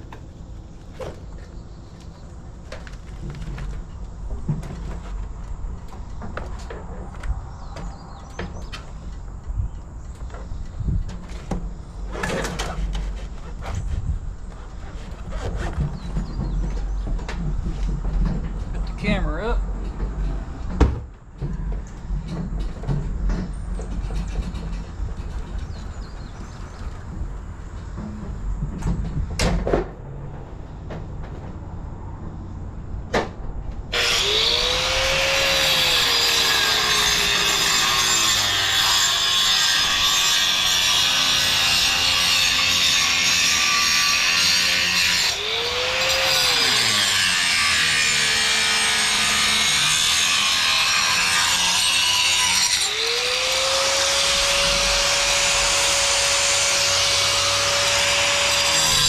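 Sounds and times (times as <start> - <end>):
power cutter cutting stone: 33.9 - 59.0.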